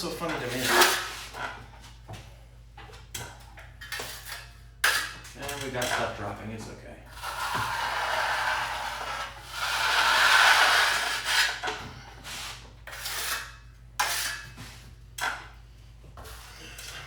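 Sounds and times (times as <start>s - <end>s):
drywall knife scraping compound: 0.1s - 1.6s, 3.8s - 6.2s, 7.1s - 14.6s, 16.2s - 17.0s.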